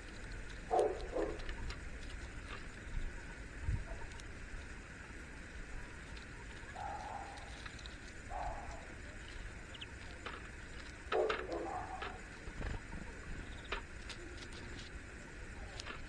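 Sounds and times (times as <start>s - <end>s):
outdoor background noise: 0.0s - 16.0s
dove cooing: 0.7s - 1.7s, 6.4s - 14.7s.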